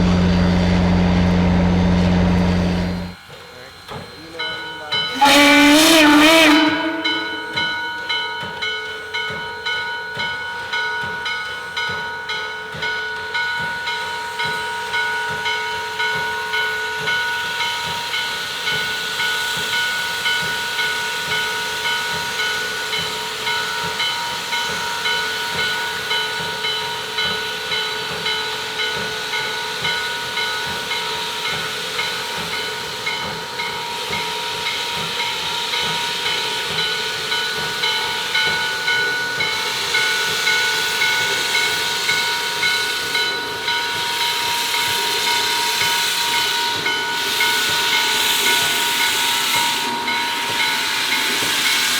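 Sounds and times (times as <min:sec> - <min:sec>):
steam hiss: 0:00.0 - 0:10.8, 0:12.8 - 0:51.9
steam locomotive chuffing: 0:00.0 - 0:51.9
high steady tones: 0:04.8 - 0:08.3.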